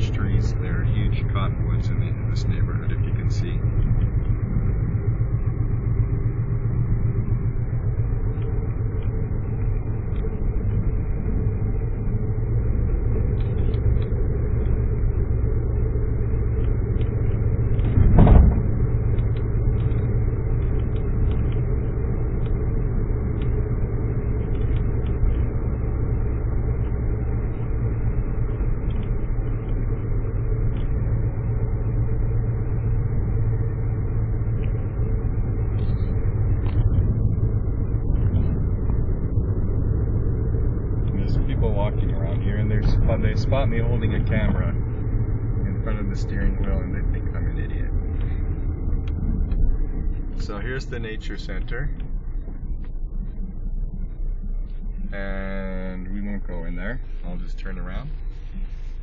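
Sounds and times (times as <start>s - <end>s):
car engine and tyres rumbling: 0.0s - 59.0s
brief thump: 17.9s - 18.7s.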